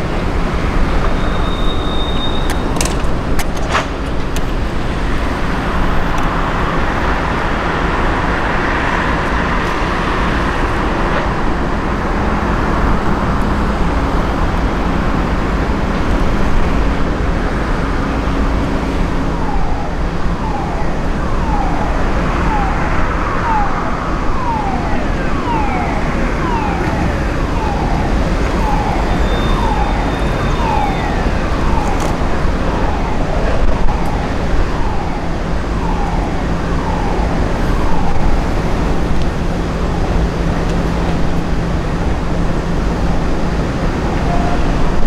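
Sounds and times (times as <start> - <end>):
railway rumble with low hum: 0.0 - 45.0
high falling warning tone: 18.2 - 45.0.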